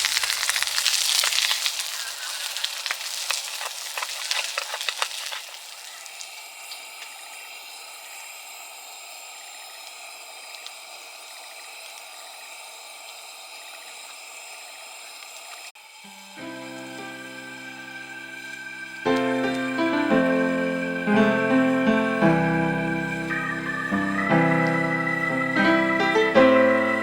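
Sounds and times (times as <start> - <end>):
meat sizzling on grill plate: 0.0 - 13.5.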